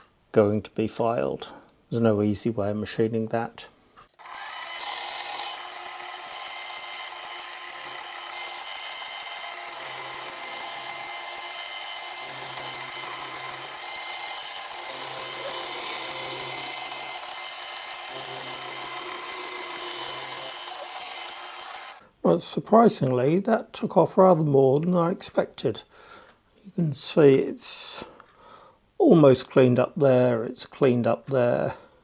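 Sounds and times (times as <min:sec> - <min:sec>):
milling machine whine: 0:04.2 - 0:22.0.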